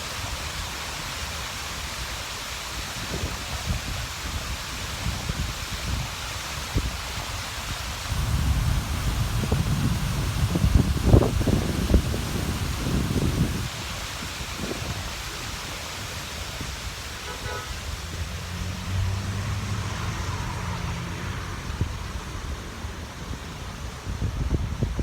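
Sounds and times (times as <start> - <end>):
steady hiss: 0.0 - 19.1
car horn toot: 17.2 - 17.8
vehicle engine hum: 17.2 - 24.3.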